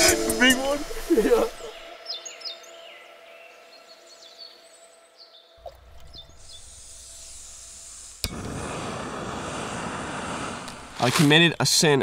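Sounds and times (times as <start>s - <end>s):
steady hiss: 0.0s - 1.8s, 5.8s - 12.0s
faint birdsong chirps: 1.2s - 7.6s.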